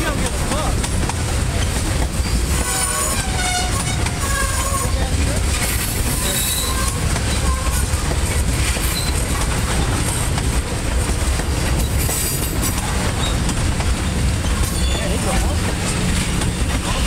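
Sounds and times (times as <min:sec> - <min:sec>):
train wheels rumbling on rail: 0:00.0 - 0:17.0
high wheel squeals: 0:05.8 - 0:07.9, 0:08.8 - 0:09.5, 0:14.1 - 0:15.2.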